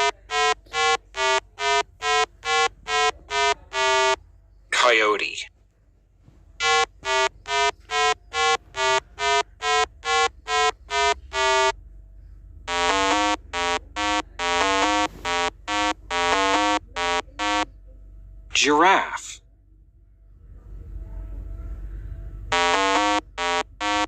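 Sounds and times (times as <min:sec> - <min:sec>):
low electronic buzzing tones: 0:00.0 - 0:04.2, 0:06.6 - 0:11.8, 0:12.6 - 0:17.7, 0:22.5 - 0:24.0
short electronic beeps: 0:00.0 - 0:04.2, 0:06.6 - 0:11.7, 0:12.7 - 0:17.6, 0:22.5 - 0:24.0.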